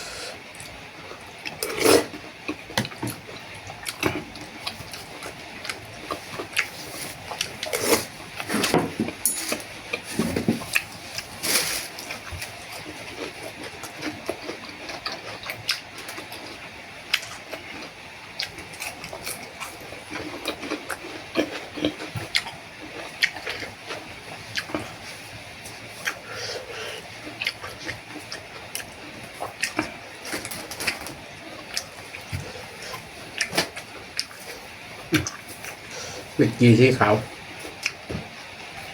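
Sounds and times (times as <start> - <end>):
slurping noodles: 1.6 - 2.2, 6.6 - 8.7
chewing: 3.8 - 8.5, 11.9 - 25.1, 25.9 - 35.8.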